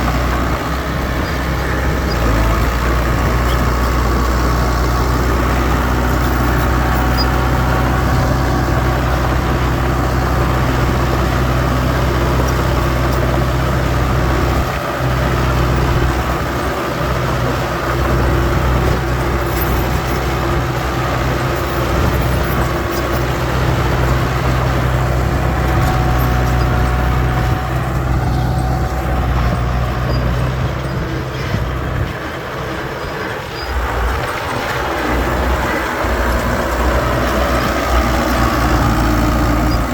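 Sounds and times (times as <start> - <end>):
heavy machinery diesel engine running: 0.0 - 39.9.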